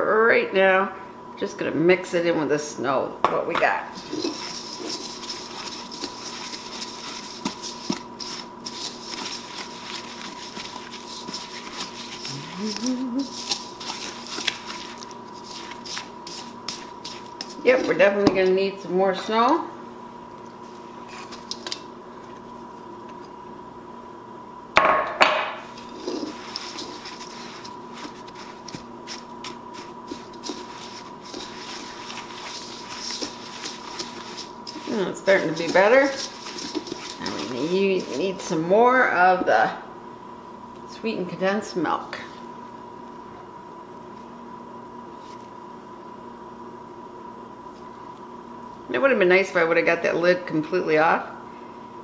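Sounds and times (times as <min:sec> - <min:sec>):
spoon stirring snow in a bowl: 0:03.9 - 0:18.5, 0:25.7 - 0:39.2.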